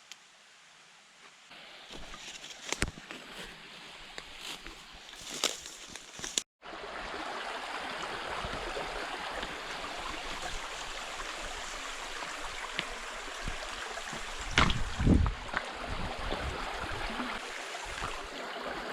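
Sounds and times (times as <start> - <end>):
river water rushing: 6.6 - 18.9.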